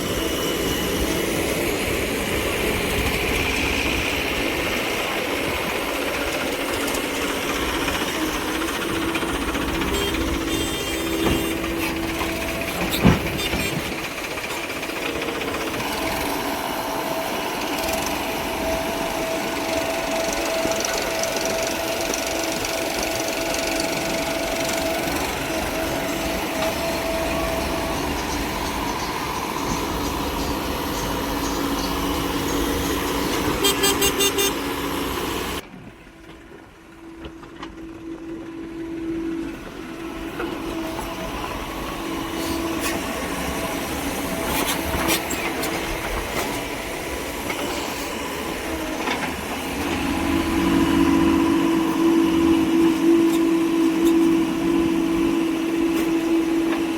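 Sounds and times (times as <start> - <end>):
vehicle engines running: 0.0 - 35.6, 36.2 - 56.9
horns honking: 8.3 - 14.7, 16.8 - 35.6.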